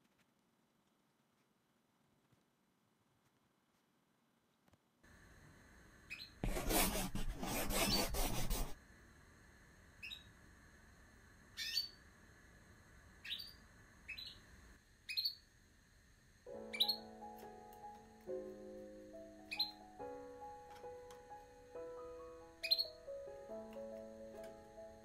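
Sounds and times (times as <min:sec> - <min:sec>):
loud scratchy rubbing: 0:06.4 - 0:08.8
rising bird chirps: 0:16.6 - 0:17.1, 0:19.4 - 0:19.8, 0:22.6 - 0:23.1.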